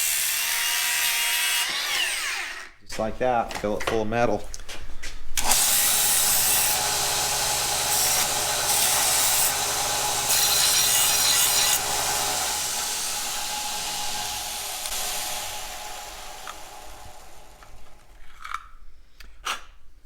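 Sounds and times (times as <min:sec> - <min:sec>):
power tool cutting metal: 0:00.0 - 0:02.8, 0:05.4 - 0:18.6.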